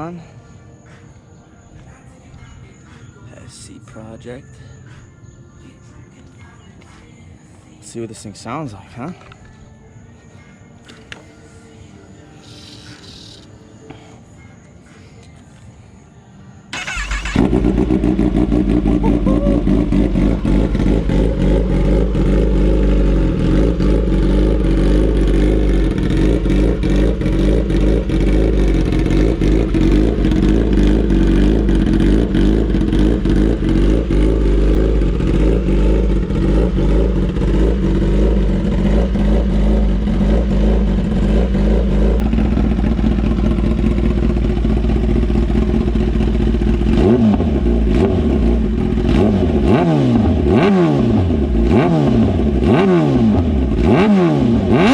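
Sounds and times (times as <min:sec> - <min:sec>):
sport bike engine running: 0:16.9 - 0:54.9.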